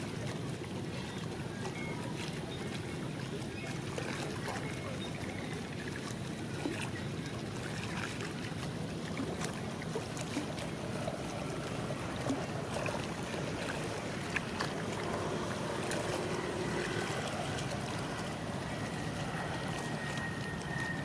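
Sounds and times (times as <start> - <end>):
low outdoor rumble: 6.4 - 21.0
faint high whine: 10.0 - 21.0.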